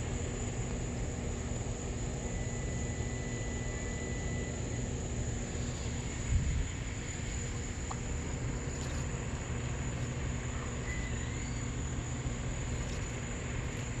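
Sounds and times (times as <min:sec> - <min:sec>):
insect trilling: 0:05.5 - 0:14.0.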